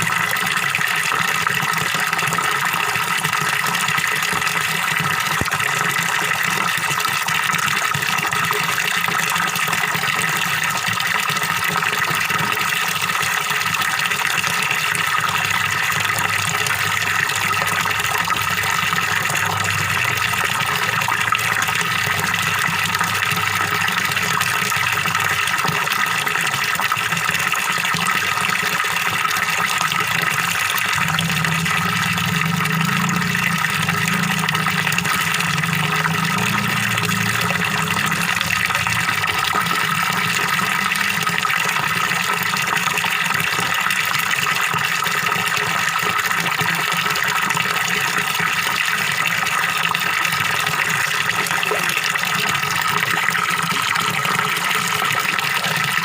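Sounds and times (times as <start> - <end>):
waterfall splashing into pond: 0.0 - 56.0.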